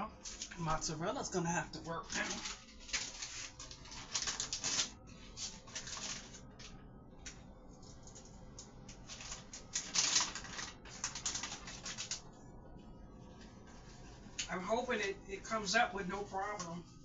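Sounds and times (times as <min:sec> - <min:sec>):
plastic packaging crinkling: 0:00.2 - 0:00.8, 0:01.8 - 0:06.8, 0:07.8 - 0:12.3.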